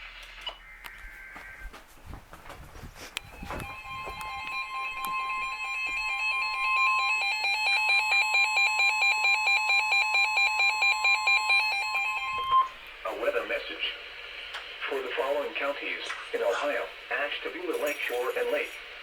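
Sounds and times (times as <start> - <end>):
pulsing two-pitch alarm beeping: 3.2 - 12.8
steady attention tone: 3.2 - 14.1.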